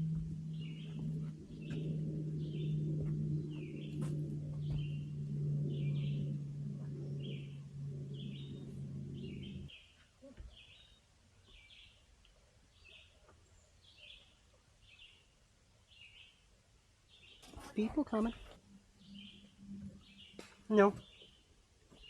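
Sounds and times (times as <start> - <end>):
steady low hum: 0.0 - 9.7, 17.4 - 22.0
bird chirping: 0.0 - 12.0, 17.1 - 22.0.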